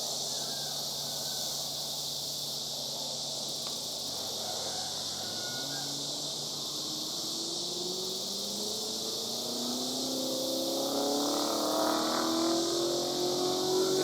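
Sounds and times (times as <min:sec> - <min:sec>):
cicada chorus buzzing: 0:00.0 - 0:14.0
vehicle engine accelerating: 0:06.5 - 0:14.0.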